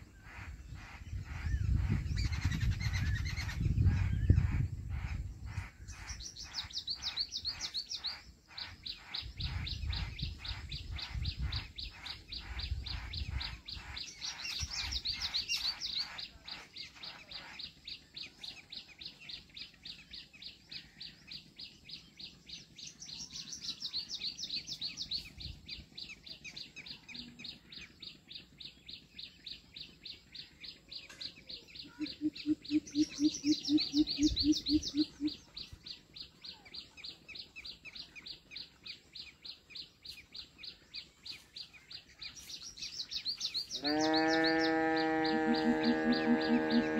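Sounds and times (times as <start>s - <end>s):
birds chirping: 0.0s - 46.9s
low hoots: 43.8s - 46.9s.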